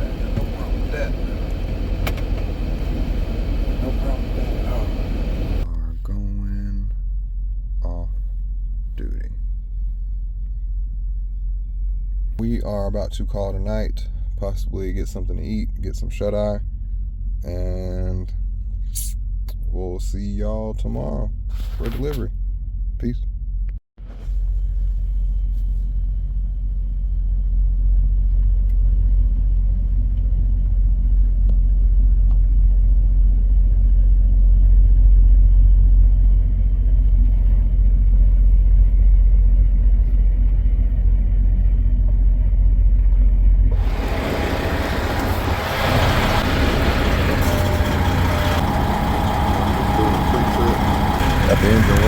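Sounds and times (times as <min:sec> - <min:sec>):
diesel truck engine idling: 0:00.0 - 0:06.2, 0:30.0 - 0:52.0.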